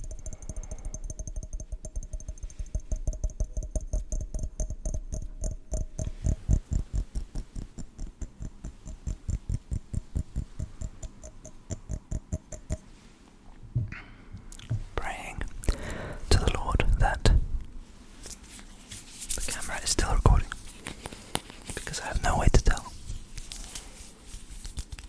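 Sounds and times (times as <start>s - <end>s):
rapid tapping on hard object: 0.0s - 12.9s.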